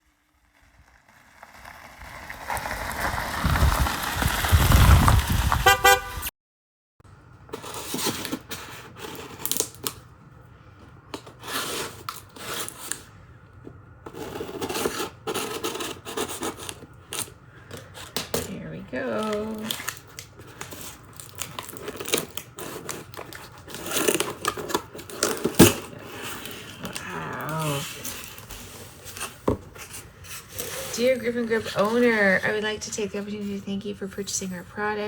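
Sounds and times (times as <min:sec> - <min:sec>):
vehicle rumble: 0:00.2 - 0:06.3, 0:25.6 - 0:35.0
horn toots: 0:05.6 - 0:06.3
package being handled: 0:19.2 - 0:31.0.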